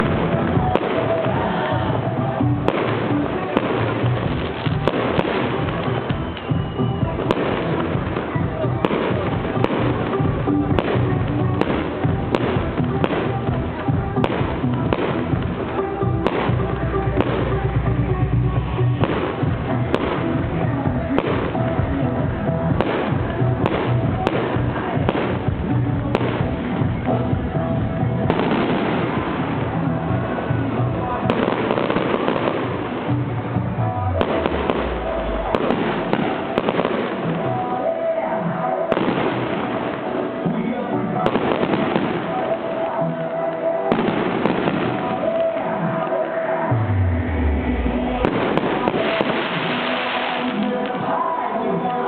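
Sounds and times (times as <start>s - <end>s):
firework bangs: 0.0s - 17.9s, 18.9s - 46.7s, 48.0s - 52.0s
fireworks crackling: 0.0s - 52.0s
music playing: 0.0s - 52.0s.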